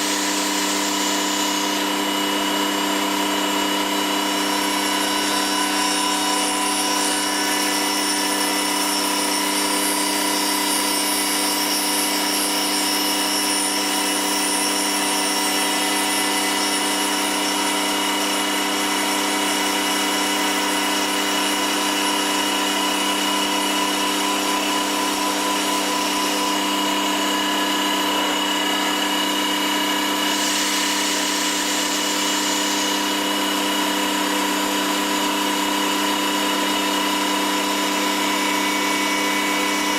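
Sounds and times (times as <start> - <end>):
woodworking machine hum: 0.0 - 39.9
hiss: 30.3 - 33.2.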